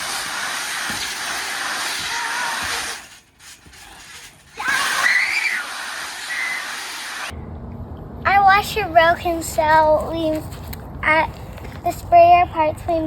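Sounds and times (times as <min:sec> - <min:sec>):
water spraying hiss: 0:00.0 - 0:03.1, 0:04.7 - 0:07.3
child squealing: 0:02.0 - 0:03.0, 0:04.6 - 0:06.8.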